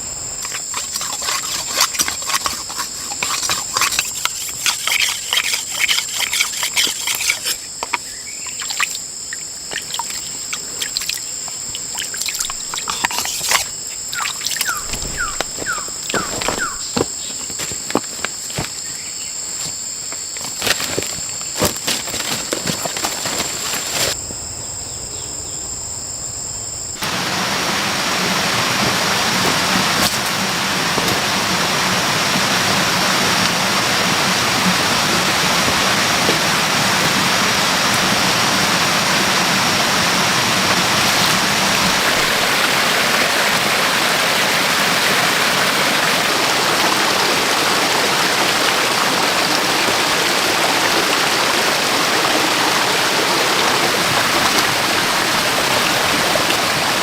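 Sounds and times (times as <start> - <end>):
insects droning: 0.0 - 57.0
rush of water: 8.6 - 17.0, 27.0 - 57.0.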